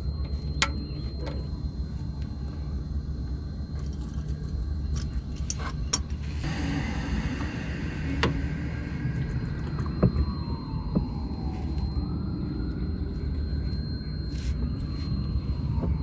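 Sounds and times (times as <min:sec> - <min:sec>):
steady low rumble: 0:06.2 - 0:16.0.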